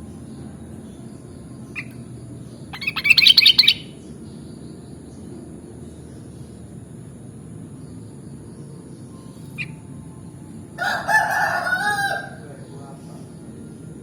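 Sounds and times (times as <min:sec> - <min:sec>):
bulbul calling: 0:01.6 - 0:04.1.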